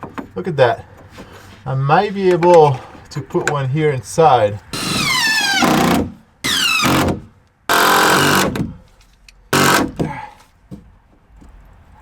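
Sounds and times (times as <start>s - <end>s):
drill driving screws: 4.8s - 8.6s, 9.6s - 9.9s.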